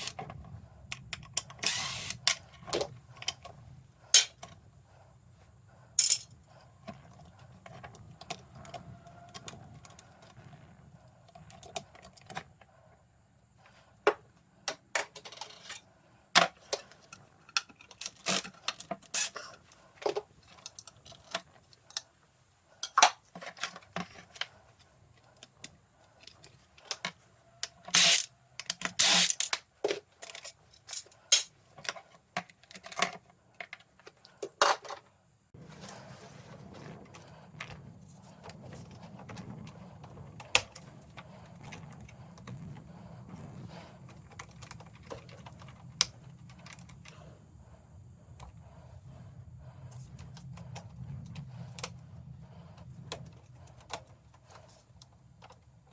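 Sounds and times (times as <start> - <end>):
hand tools clinking: 6.0 - 6.4, 30.2 - 31.5.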